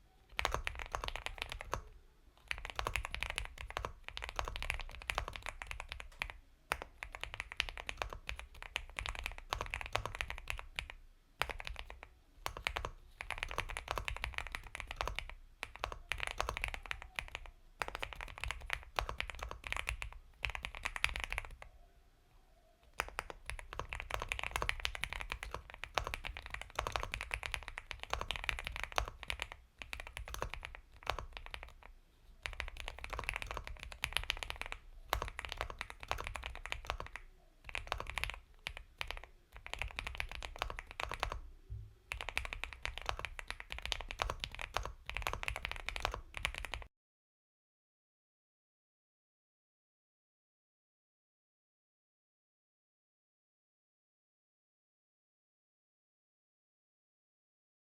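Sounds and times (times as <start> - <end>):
mechanical keyboard typing: 0.3 - 21.6, 22.9 - 41.4, 42.1 - 46.9.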